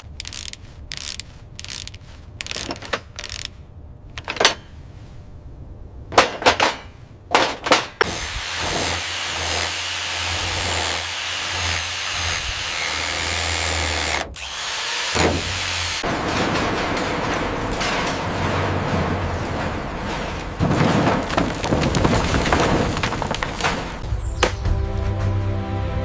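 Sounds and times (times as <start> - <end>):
power tool humming: 8.0 - 16.0
sharp knocks: 15.2 - 24.6.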